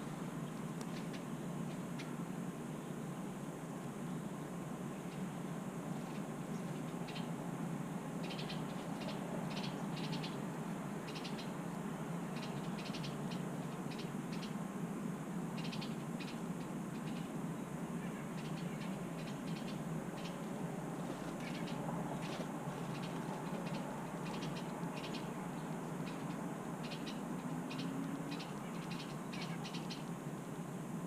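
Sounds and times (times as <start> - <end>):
low background hum: 0.0 - 31.0
small birds rattling calls: 6.0 - 7.4, 8.2 - 14.6, 15.6 - 17.4, 18.2 - 30.2.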